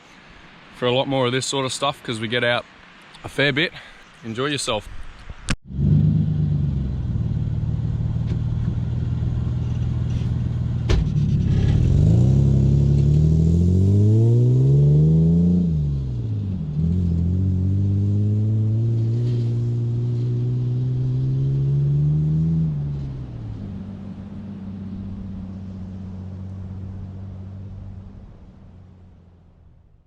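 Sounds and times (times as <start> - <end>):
engine revving: 5.7 - 29.0.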